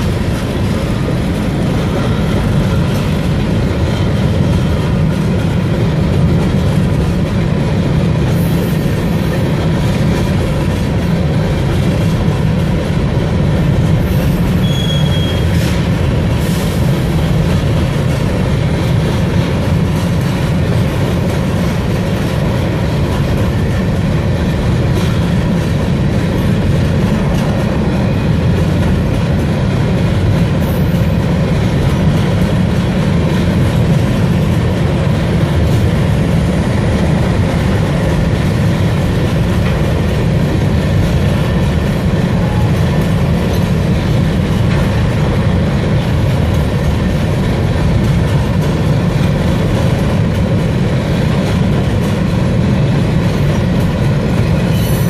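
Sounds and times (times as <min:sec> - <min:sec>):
train wheels rumbling on rail: 0:00.0 - 0:55.0
high-pitched wheel squeal: 0:14.2 - 0:15.7, 0:54.7 - 0:55.0.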